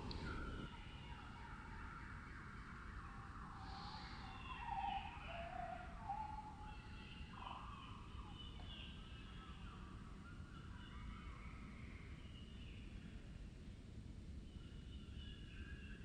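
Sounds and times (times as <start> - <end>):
slowed low-pitched birdsong: 0.0 - 1.7.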